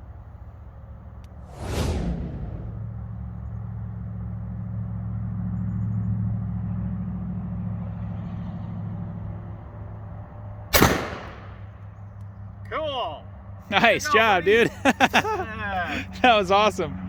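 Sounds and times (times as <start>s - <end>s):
vehicle engine humming: 0.0s - 17.0s
shotgun blast: 10.7s - 11.8s.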